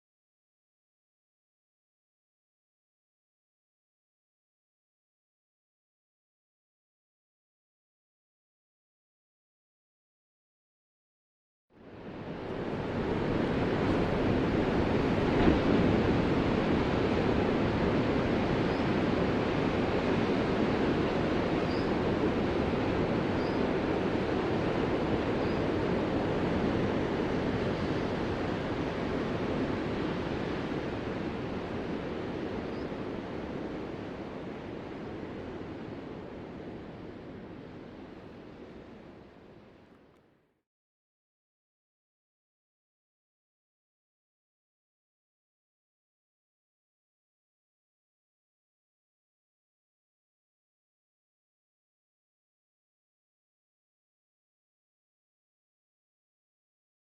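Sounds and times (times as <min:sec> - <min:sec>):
ocean surf: 0:11.8 - 0:39.7.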